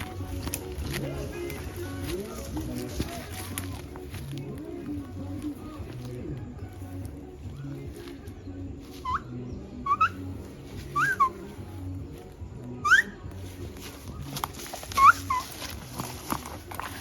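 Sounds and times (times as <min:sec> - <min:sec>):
rising whistled notes: 0:09.0 - 0:11.5, 0:12.8 - 0:13.2.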